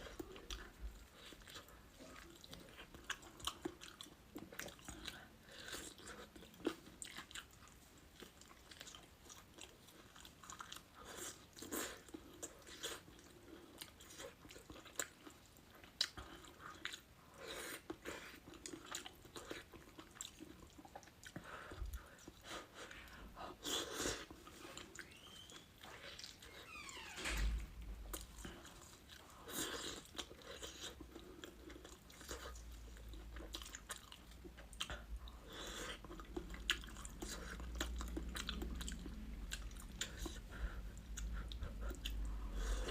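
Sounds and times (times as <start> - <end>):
person chewing crunchy food: 0.0 - 26.6, 27.8 - 42.9.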